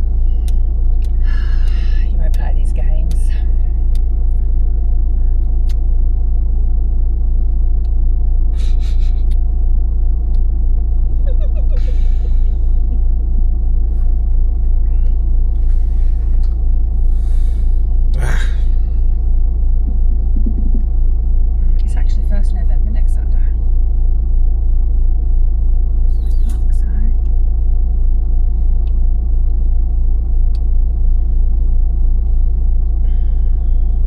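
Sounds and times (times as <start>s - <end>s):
truck engine idling: 0.0s - 34.0s.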